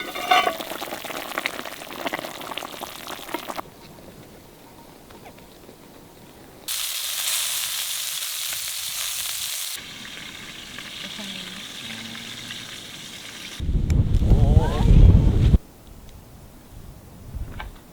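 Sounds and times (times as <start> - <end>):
food sizzling in a pan: 0.0 - 3.6, 6.7 - 13.6
loud low rumble: 13.6 - 15.6.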